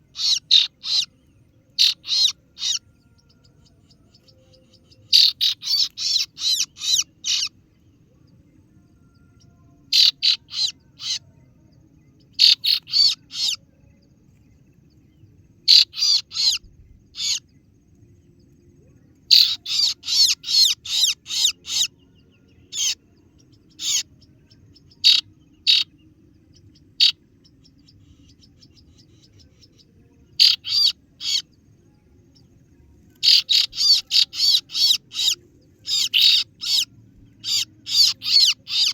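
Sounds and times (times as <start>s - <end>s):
bird chirping rapidly: 0.0s - 1.1s, 1.8s - 2.8s, 5.1s - 7.5s, 9.9s - 11.2s, 12.4s - 13.6s, 15.7s - 17.4s, 19.3s - 21.9s, 22.7s - 23.0s, 23.7s - 24.1s, 24.9s - 25.9s, 30.4s - 31.5s, 33.2s - 38.9s
faint low hum: 0.0s - 38.9s.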